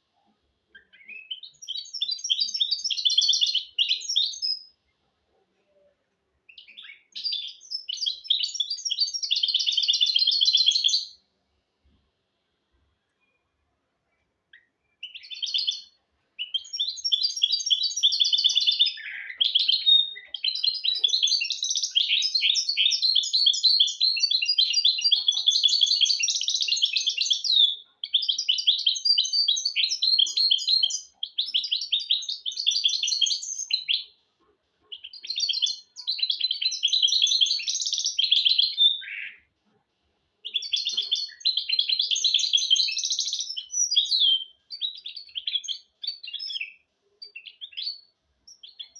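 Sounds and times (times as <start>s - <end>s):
bird twittering song: 0.0s - 5.0s, 6.5s - 11.2s, 13.0s - 39.5s, 40.4s - 48.9s.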